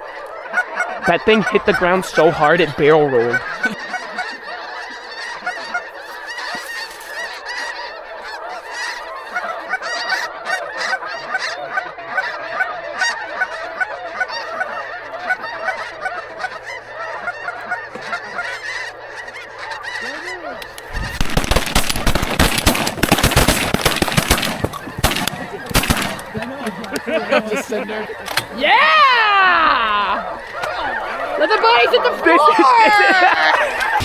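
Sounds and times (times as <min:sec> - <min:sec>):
geese honking: 0:00.0 - 0:34.0
shotgun blasts: 0:21.0 - 0:26.4.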